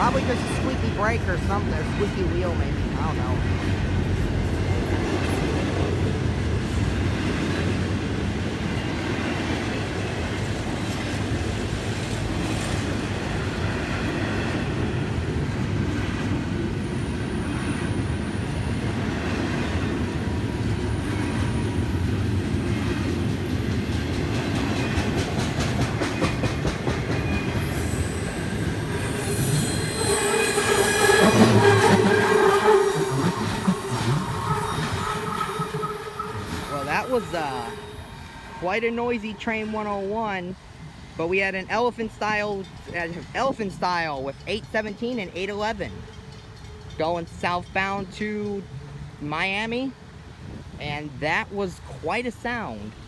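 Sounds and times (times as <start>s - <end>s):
freight train rolling past: 0.0s - 50.8s
high metallic wheel squeal: 27.2s - 39.8s.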